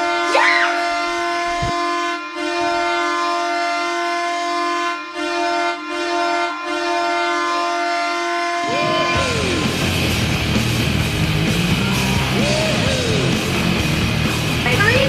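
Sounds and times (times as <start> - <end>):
arena goal horn blast: 0.0 - 10.2.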